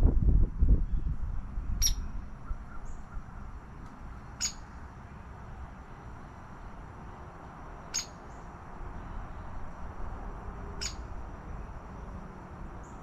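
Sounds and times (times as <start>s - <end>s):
wind rumble on microphone: 0.0s - 3.9s.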